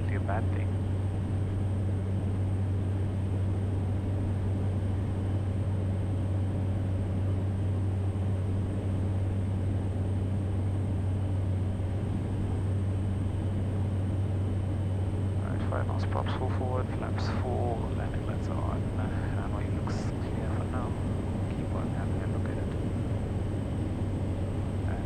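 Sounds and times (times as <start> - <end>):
propeller aircraft engine drone: 0.0 - 25.0
airflow noise: 15.5 - 25.0.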